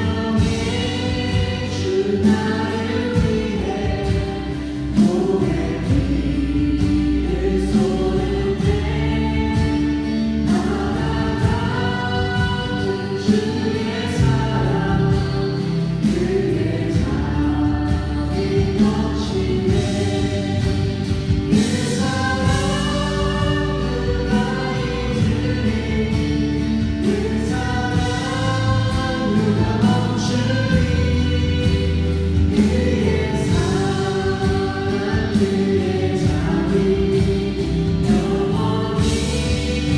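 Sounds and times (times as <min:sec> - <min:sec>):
group singing a praise song: 0:00.0 - 0:39.9.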